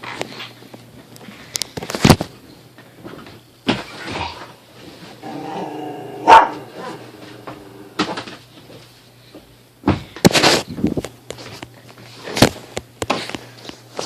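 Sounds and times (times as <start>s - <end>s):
dog growling: 5.2s - 8.2s
dog barking: 6.2s - 7.1s.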